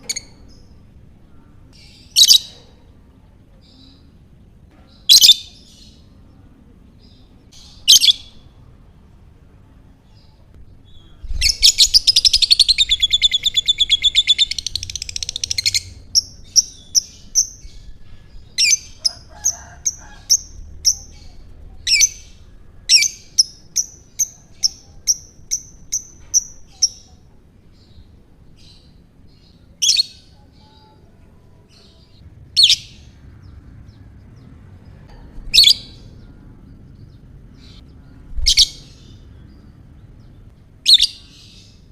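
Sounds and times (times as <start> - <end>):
bird chirps: 10.2 - 27.2, 31.8 - 41.9.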